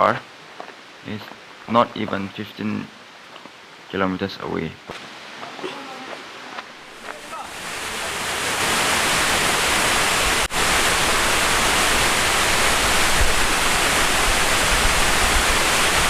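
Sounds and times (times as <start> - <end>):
waterfall rushing: 5.1 - 16.0.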